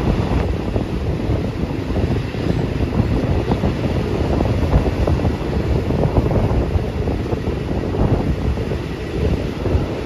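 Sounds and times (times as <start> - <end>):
train rumbling on track: 0.0 - 10.0
wind buffeting microphone: 0.0 - 10.0.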